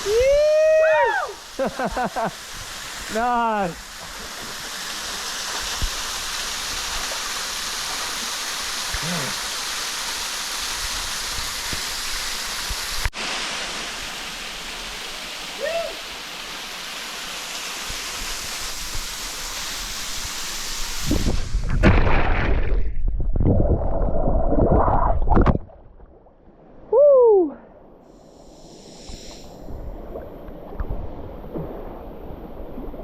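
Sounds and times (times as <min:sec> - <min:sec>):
waterfall pouring into pool: 0:00.0 - 0:25.5.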